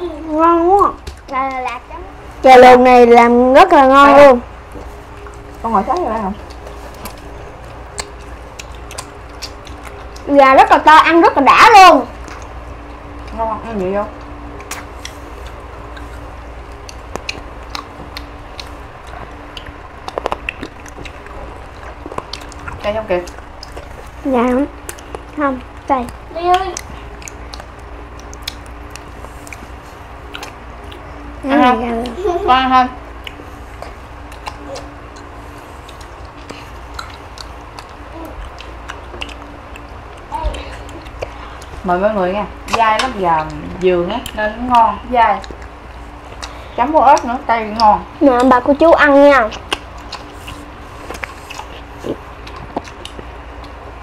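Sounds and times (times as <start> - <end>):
steady hum: 0.0 - 54.0
chewing chicken: 3.6 - 32.4, 33.0 - 41.8, 45.4 - 54.0
wet mouth clicks and smacks: 7.9 - 10.3, 14.2 - 24.0, 24.8 - 29.7, 30.3 - 31.0, 33.2 - 41.7, 49.6 - 53.8.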